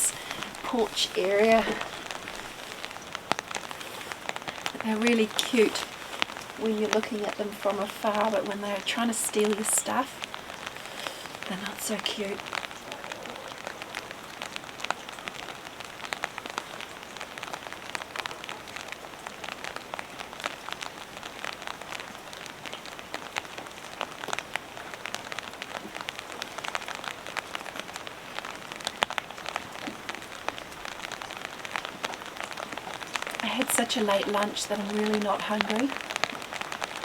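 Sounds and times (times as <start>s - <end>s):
heavy rain: 0.0s - 37.0s.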